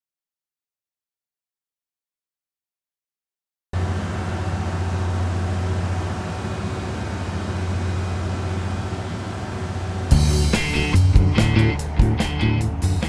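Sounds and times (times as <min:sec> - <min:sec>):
vehicle engine drone: 0:03.8 - 0:13.0
music: 0:10.1 - 0:13.0.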